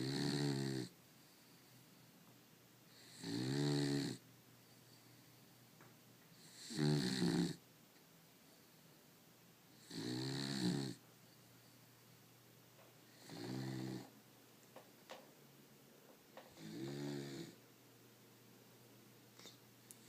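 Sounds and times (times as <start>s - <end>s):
dog snoring loudly: 0.0s - 0.9s, 2.9s - 4.2s, 6.4s - 7.6s, 9.8s - 11.0s, 13.1s - 14.1s, 16.5s - 17.6s.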